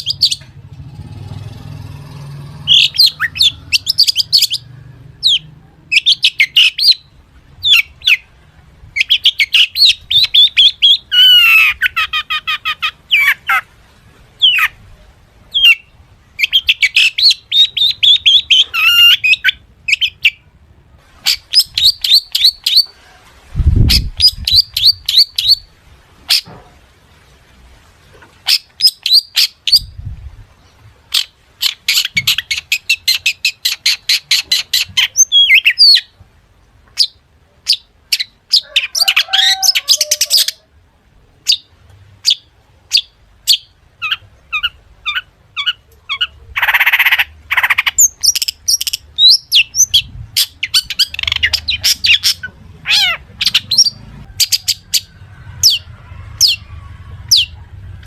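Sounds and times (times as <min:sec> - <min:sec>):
harsh rasping squawk: 0:00.0 - 0:08.3, 0:09.0 - 0:13.8, 0:15.5 - 0:20.4, 0:37.0 - 0:40.7, 0:42.2 - 0:58.0
shrike singing: 0:00.0 - 0:13.7.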